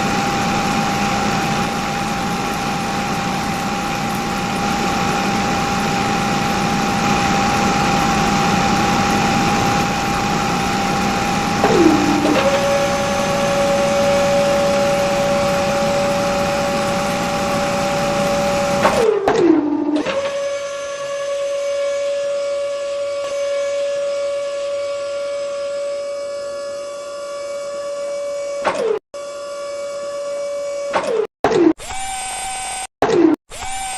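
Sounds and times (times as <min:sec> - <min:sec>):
small electric motor whining: 0:31.8 - 0:32.9, 0:33.5 - 0:33.9.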